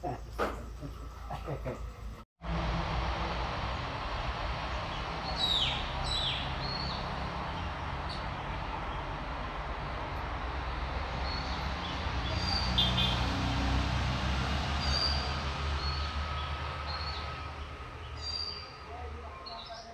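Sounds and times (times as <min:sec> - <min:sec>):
steady low rumble: 0:02.4 - 0:12.2
birds whistling and chirping: 0:05.2 - 0:07.1.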